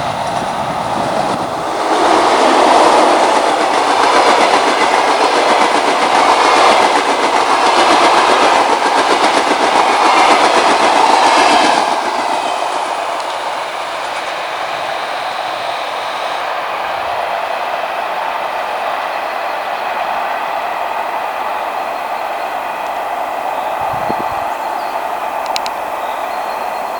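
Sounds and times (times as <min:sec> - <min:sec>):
electric train passing: 0:00.0 - 0:26.9
wheels clattering over rail joints: 0:01.3 - 0:15.2.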